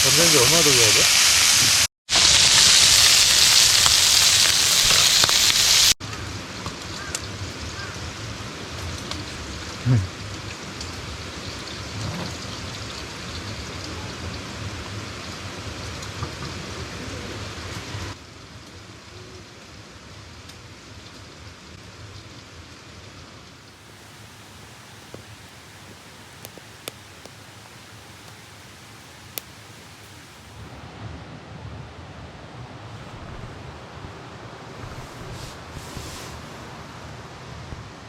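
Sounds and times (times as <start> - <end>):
rushing mountain stream: 23.8 - 30.7.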